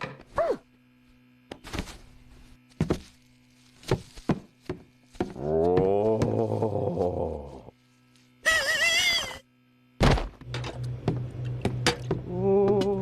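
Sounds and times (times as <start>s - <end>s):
long wavering groan: 5.4s - 7.8s, 12.2s - 13.0s.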